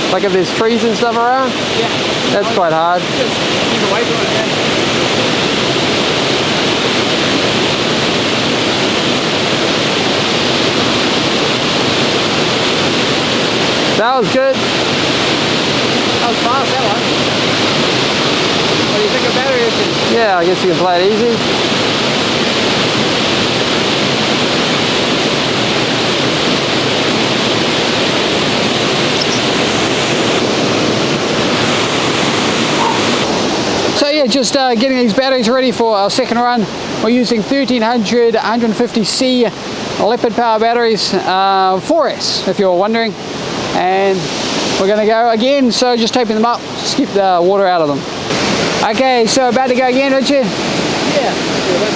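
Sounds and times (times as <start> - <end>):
waterfall pouring: 0.0 - 38.7.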